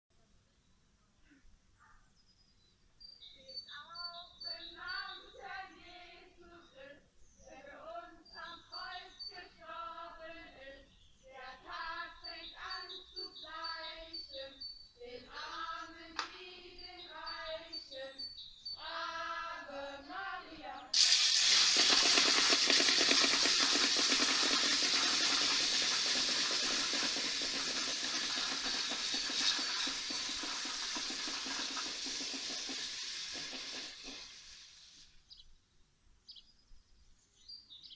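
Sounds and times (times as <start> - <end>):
voices chanting together: 4.5 - 18.2, 18.8 - 21.0.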